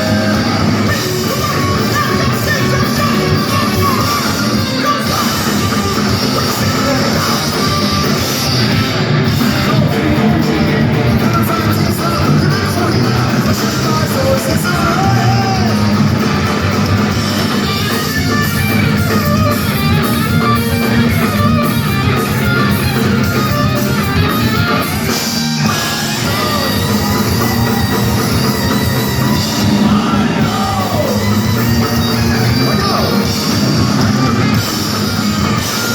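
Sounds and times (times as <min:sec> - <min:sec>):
person singing: 0:00.0 - 0:16.2, 0:25.6 - 0:34.5
bass guitar: 0:00.0 - 0:35.9
distorted electric guitars: 0:00.0 - 0:35.9
drum kit: 0:00.0 - 0:35.9.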